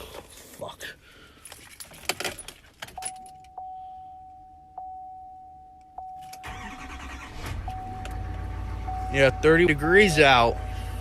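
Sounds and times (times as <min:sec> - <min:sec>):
dashboard warning chimes: 0:02.9 - 0:11.0
diesel engine cranking and starting: 0:06.2 - 0:11.0.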